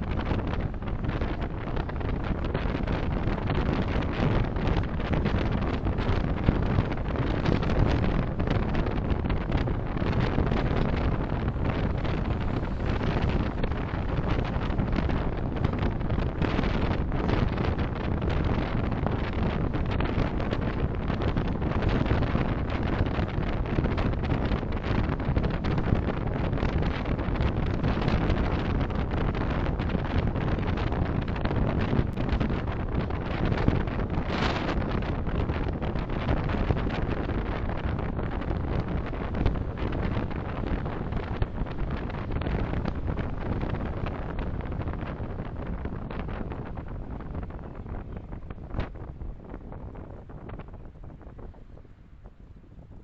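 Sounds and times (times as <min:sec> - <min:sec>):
car road and tyre noise: 0:00.0 - 0:53.0
car engine hum: 0:00.2 - 0:24.2.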